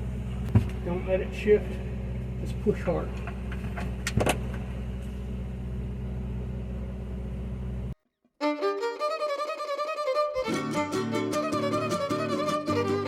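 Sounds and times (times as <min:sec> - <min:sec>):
low mechanical hum: 0:00.0 - 0:08.0
background music with fiddle: 0:08.4 - 0:13.0.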